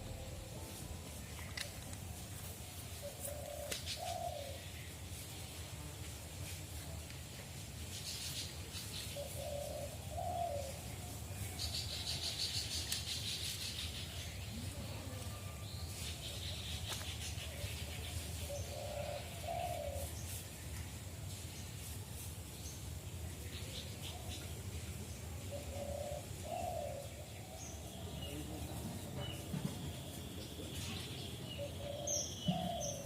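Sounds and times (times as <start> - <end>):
rustling hiss: 0.0 - 33.0
dove cooing: 3.0 - 4.6, 9.2 - 10.8, 18.5 - 20.0, 25.5 - 27.2, 31.6 - 33.0.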